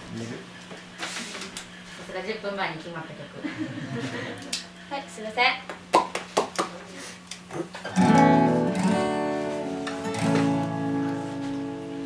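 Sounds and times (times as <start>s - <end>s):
acoustic guitar strumming chords: 7.8s - 12.0s.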